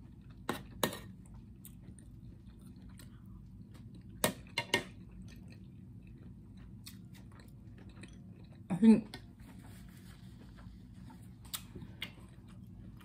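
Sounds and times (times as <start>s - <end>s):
chewing and mouth sounds: 0.0s - 9.3s.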